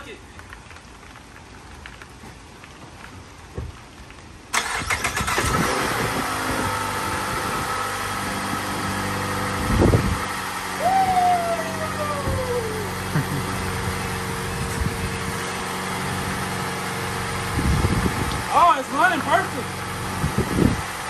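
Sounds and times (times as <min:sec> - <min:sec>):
car engine cranking and starting: 0:04.5 - 0:10.8
car engine idling: 0:04.6 - 0:21.0.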